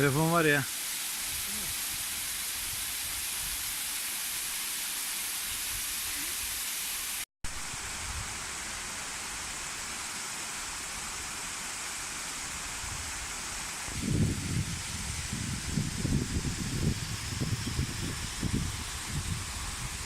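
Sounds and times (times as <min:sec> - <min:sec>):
waterfall rushing: 0:00.0 - 0:02.7.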